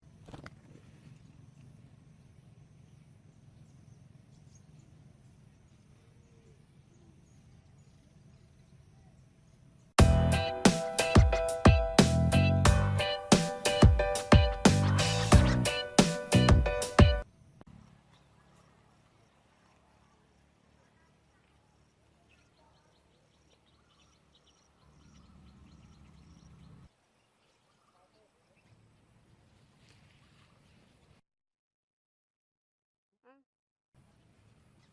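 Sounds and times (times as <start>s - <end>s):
faint bird chirping: 0.1s - 10.5s, 12.4s - 29.8s.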